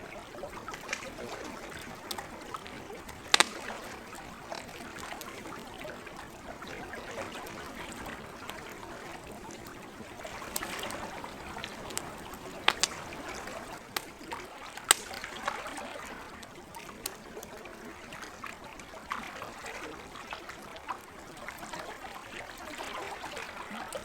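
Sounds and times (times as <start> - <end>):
lake water lapping: 0.0 - 24.0
wood fire crackling and popping: 0.2 - 17.5.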